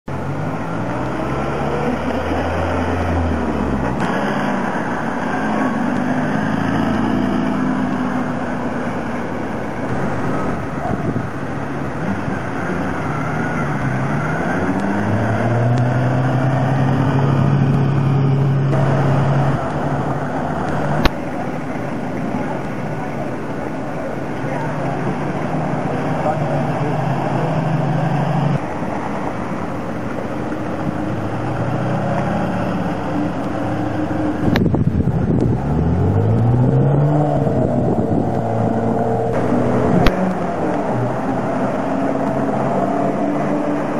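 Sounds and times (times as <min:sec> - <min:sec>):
car engines driving past: 0:00.1 - 0:43.9
steady low engine note: 0:00.1 - 0:43.9.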